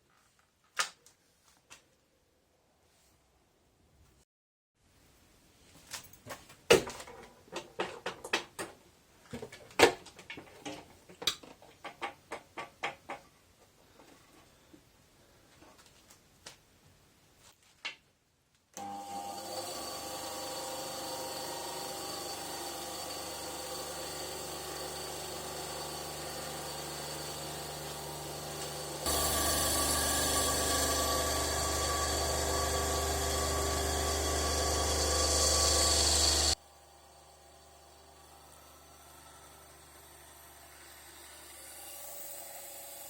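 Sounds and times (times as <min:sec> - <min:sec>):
bandsaw motor humming: 0:18.8 - 0:43.0.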